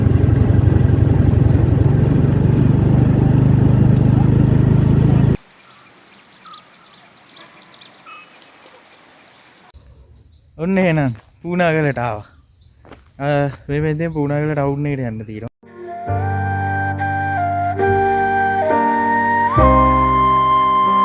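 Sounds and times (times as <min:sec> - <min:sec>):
faint bird chirps: 0:05.5 - 0:12.9.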